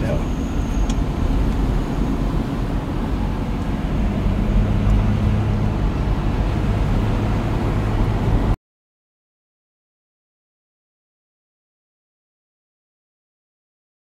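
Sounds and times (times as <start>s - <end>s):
car road rumble: 0.0s - 8.6s.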